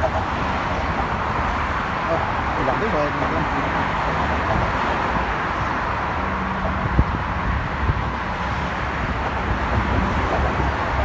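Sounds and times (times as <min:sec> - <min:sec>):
road traffic noise: 0:00.0 - 0:11.0
wind on microphone: 0:04.4 - 0:11.0.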